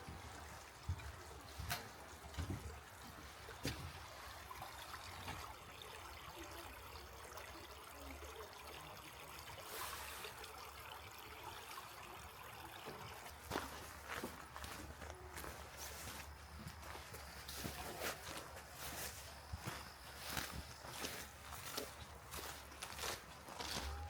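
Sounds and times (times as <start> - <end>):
stream trickling over rocks: 0.0 - 24.0
footstep: 13.4 - 24.0.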